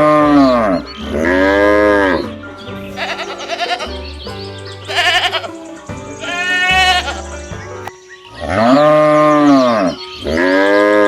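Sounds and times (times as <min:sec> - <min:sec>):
background music: 0:00.0 - 0:11.0
sheep bleating: 0:03.0 - 0:04.1, 0:04.9 - 0:05.6, 0:06.2 - 0:07.5.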